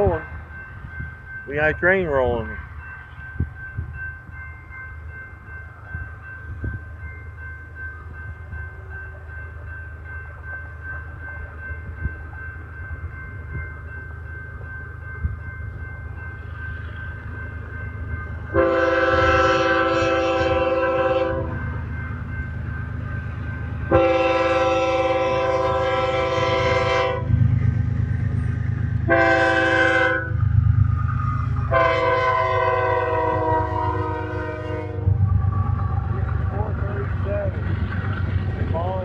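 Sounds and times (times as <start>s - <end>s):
train rumbling: 0.0s - 39.0s
locomotive horn blasts: 18.5s - 21.6s, 23.9s - 27.4s, 29.1s - 30.4s, 31.7s - 35.2s.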